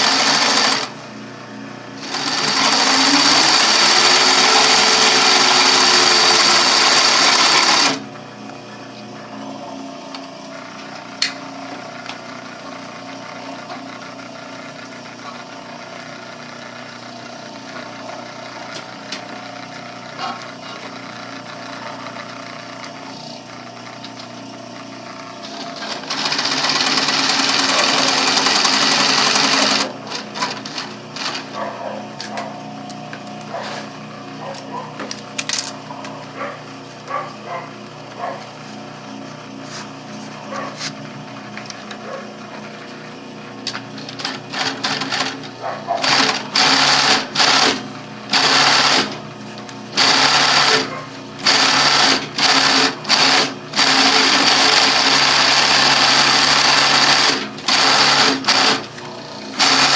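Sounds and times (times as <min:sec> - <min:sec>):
sewing machine stitching: 0:00.0 - 0:01.0, 0:02.0 - 0:08.1, 0:25.4 - 0:32.5, 0:43.6 - 0:49.2, 0:49.9 - 0:59.9.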